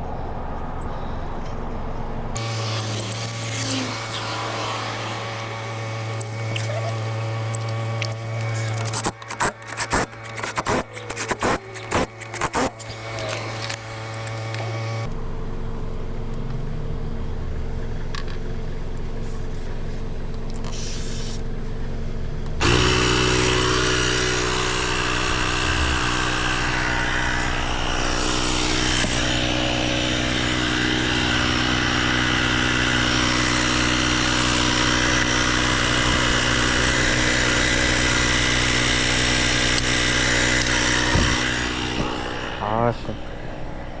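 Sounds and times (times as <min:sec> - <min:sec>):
sharp clicks: 0:02.4 - 0:15.1
motor running: 0:02.4 - 0:15.2, 0:22.4 - 0:44.0.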